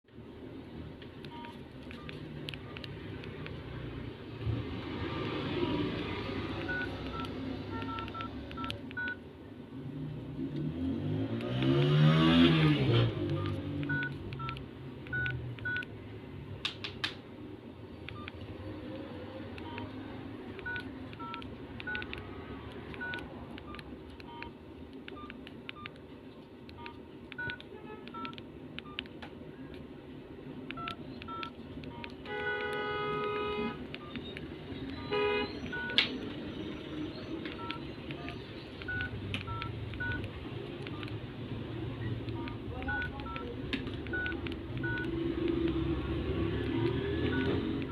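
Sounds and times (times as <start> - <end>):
phone keypad beeps: 1.2 - 3.6, 6.6 - 9.2, 13.3 - 15.9, 18.1 - 18.4, 19.6 - 20.0, 20.6 - 22.2, 22.8 - 26.0, 26.7 - 29.1, 30.7 - 41.2, 42.2 - 45.1, 47.2 - 47.9
vehicle passing: 2.2 - 9.1, 9.7 - 16.6, 30.5 - 47.9.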